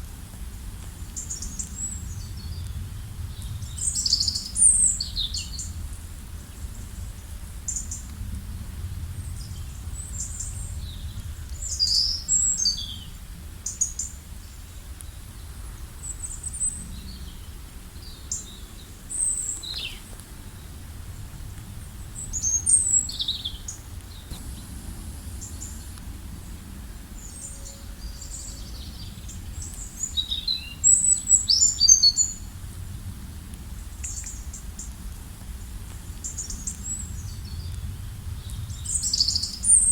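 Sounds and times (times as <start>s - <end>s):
low background rumble: 14.2s - 39.7s.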